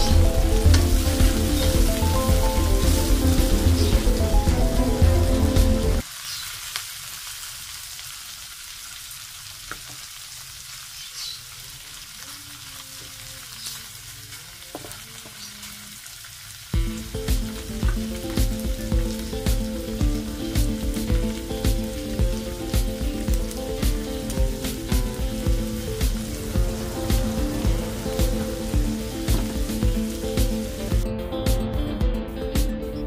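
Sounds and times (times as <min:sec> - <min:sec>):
background music: 0:00.0 - 0:06.0, 0:16.8 - 0:33.0
prawns sizzling in oil: 0:00.0 - 0:31.0.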